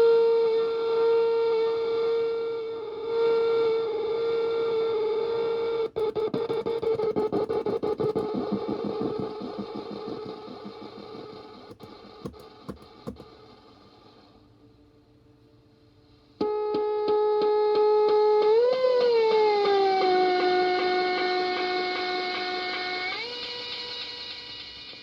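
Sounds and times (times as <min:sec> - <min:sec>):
sharp clicks: 0:05.9 - 0:13.3.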